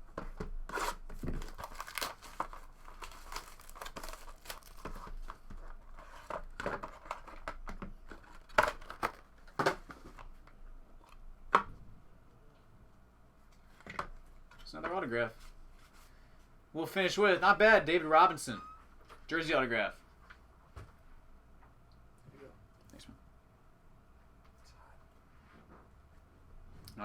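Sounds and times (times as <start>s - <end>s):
card packaging tearing and crinkling: 0.7s - 10.0s.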